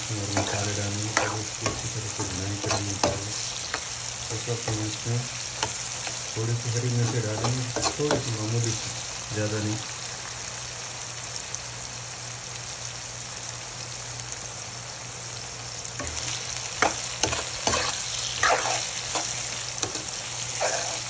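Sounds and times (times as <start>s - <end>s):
vegetables sizzling in oil: 0.0s - 21.0s
steel spoon scraping pan: 0.3s - 3.9s, 7.0s - 8.3s, 16.0s - 21.0s.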